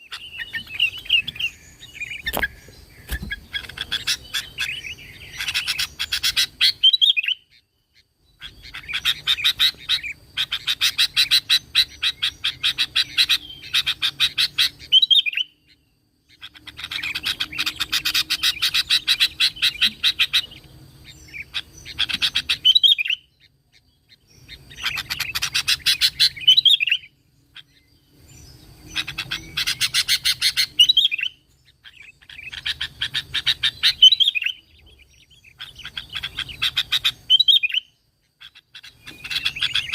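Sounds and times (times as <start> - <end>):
bulbul singing in chattering bursts: 0.0 - 7.5, 16.3 - 23.4, 24.4 - 27.8, 28.8 - 39.9.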